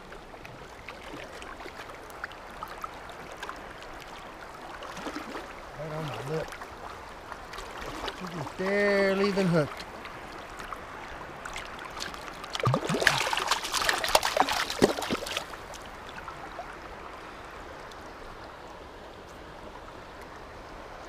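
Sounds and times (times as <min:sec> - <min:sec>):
river water rushing: 0:00.0 - 0:21.0
splashing and clatter: 0:11.6 - 0:15.8.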